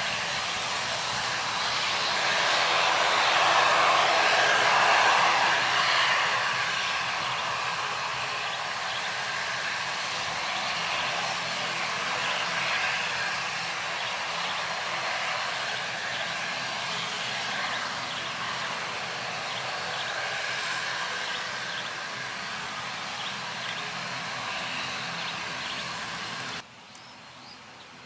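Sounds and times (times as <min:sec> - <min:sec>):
jet airliner engines rushing: 0:00.0 - 0:26.7.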